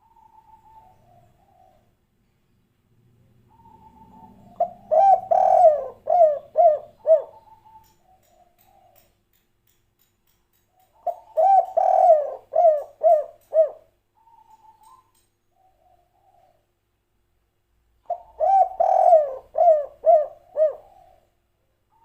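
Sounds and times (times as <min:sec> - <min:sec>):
dove cooing: 0:00.0 - 0:02.0, 0:03.5 - 0:09.1, 0:11.0 - 0:16.6, 0:18.1 - 0:22.0.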